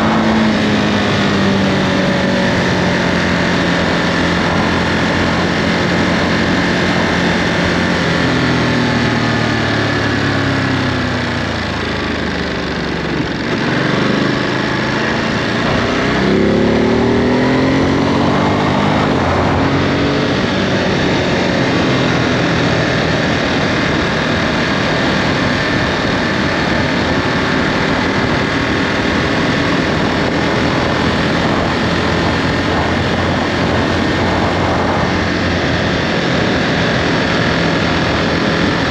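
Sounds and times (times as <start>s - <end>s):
motorcycle engine: 0.0s - 38.9s.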